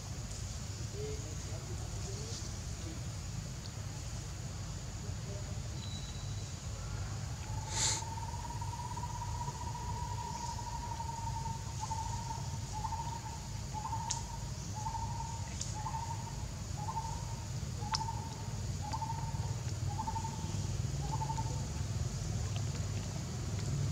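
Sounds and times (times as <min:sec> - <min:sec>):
high hiss: 0:07.6 - 0:08.2.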